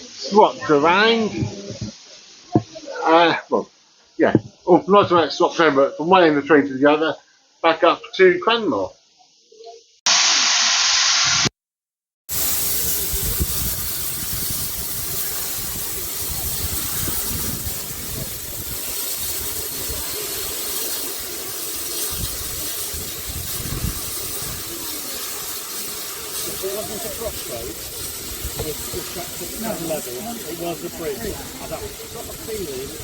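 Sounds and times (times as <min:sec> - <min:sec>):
steam locomotive hissing: 0:00.0 - 0:03.6, 0:12.3 - 0:33.0
low rumbling gusts: 0:12.4 - 0:33.0.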